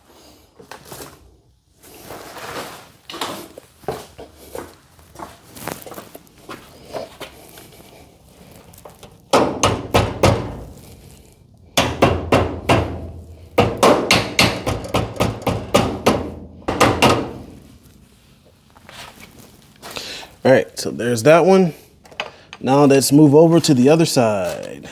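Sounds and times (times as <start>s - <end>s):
hammer striking metal hinge: 9.3s - 11.0s, 11.8s - 17.8s.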